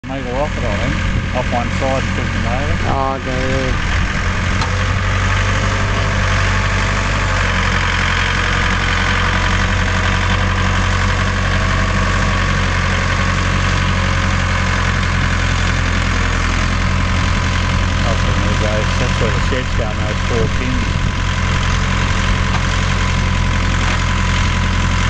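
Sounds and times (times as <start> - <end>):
tractor diesel engine idling: 0.0 - 25.0.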